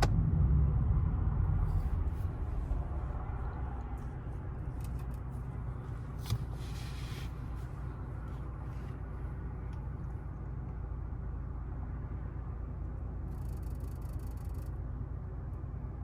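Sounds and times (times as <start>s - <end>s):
engine and road noise drone: 0.0s - 16.0s
brief hiss: 6.2s - 7.4s.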